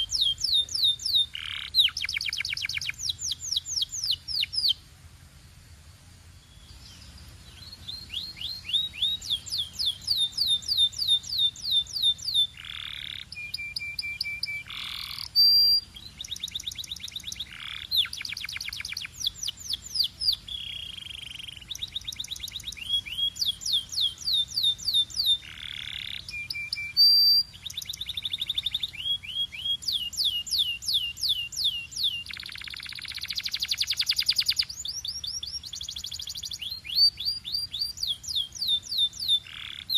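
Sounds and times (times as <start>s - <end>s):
canary singing: 0.0s - 4.8s, 6.5s - 39.9s.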